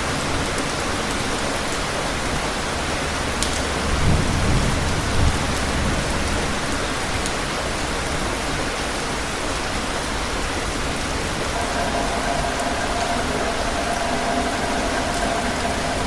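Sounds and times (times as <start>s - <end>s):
faint steady tone: 11.6s - 16.0s
heavy rain falling: 11.6s - 16.0s.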